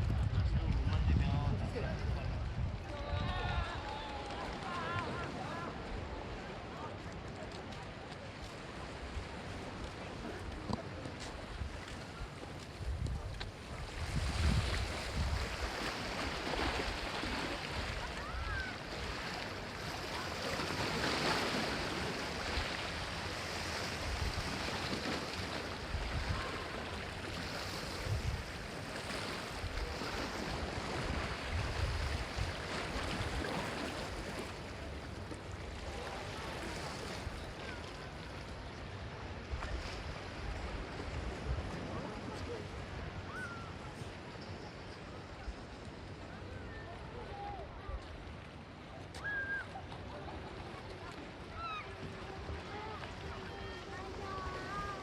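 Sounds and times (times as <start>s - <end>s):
wind buffeting microphone: 0.0s - 6.2s, 10.2s - 17.1s, 27.8s - 28.7s, 29.6s - 33.8s
sea waves washing in: 2.7s - 44.4s, 47.1s - 55.0s.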